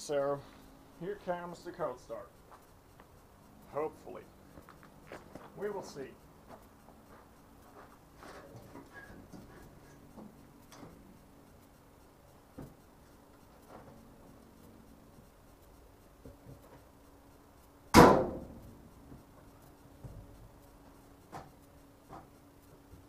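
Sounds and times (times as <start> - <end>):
loud sharp bang: 17.9 - 18.6.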